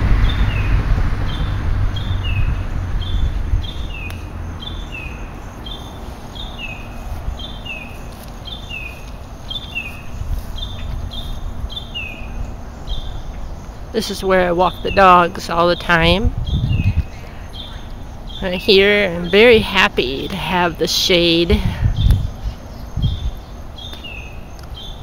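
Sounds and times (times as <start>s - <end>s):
low rumble: 0.0s - 13.7s, 15.7s - 18.4s.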